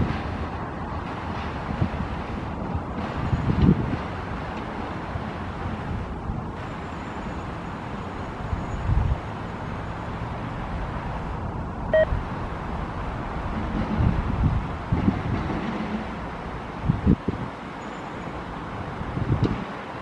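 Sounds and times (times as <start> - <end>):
train wheels rumbling on rail: 0.0 - 20.0
short beep: 11.9 - 12.1.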